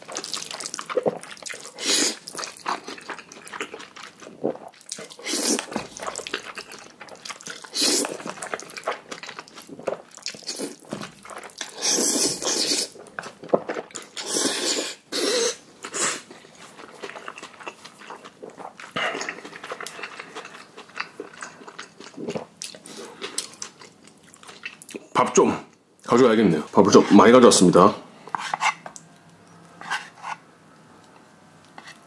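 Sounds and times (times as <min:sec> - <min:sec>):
noodle slurping: 0:00.0 - 0:16.2
wet chewing: 0:00.0 - 0:25.1.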